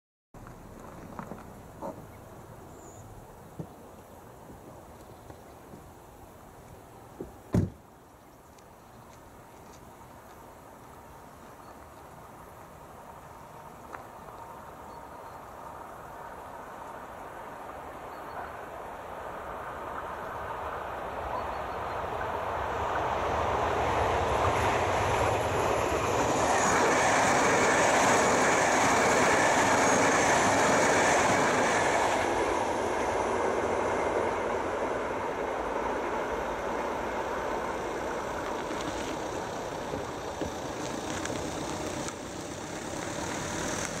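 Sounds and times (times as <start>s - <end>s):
train passing at speed: 10.6s - 44.0s.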